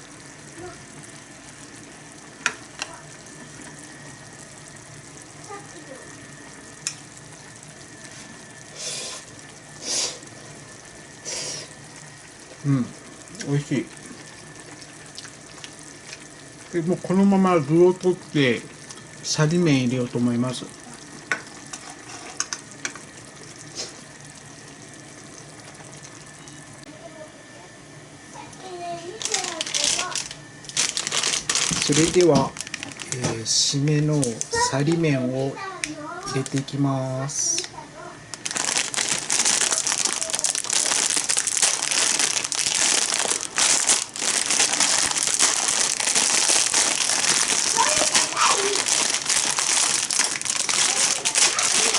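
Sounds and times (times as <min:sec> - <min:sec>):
stew bubbling in a pot: 0:00.0 - 0:35.4, 0:36.0 - 0:51.9
plastic packet crinkling: 0:29.1 - 0:35.0, 0:36.2 - 0:36.7, 0:38.3 - 0:51.9.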